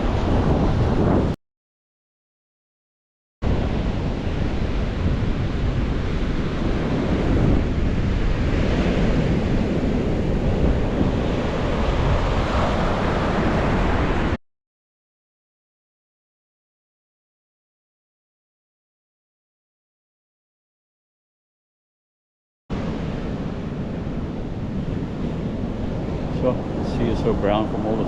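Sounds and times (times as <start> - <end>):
ocean surf on beach: 0.0 - 1.4, 3.4 - 14.4, 22.7 - 28.0
wind on microphone: 0.0 - 1.4, 3.4 - 14.4, 22.8 - 28.0.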